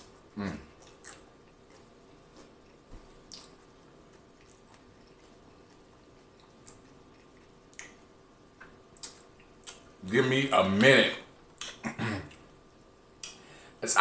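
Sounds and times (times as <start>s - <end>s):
closed-mouth chewing: 0.0s - 10.0s.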